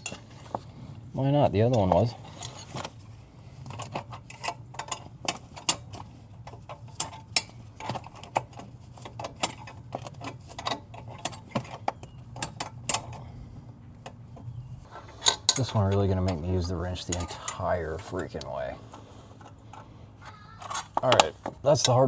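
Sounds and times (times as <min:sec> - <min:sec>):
steady low hum: 0:00.0 - 0:20.3.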